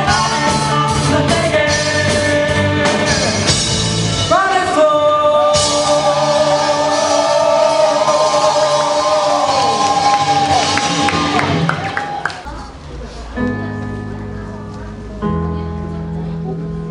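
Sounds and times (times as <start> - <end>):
person singing: 0.0 - 10.3
rock band playing live: 0.0 - 12.2.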